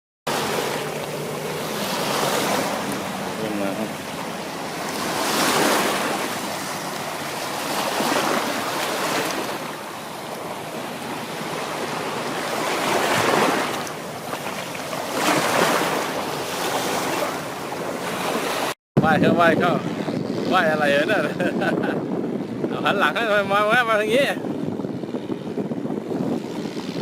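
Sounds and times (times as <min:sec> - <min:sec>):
waves washing onto sand: 0:00.3 - 0:18.8.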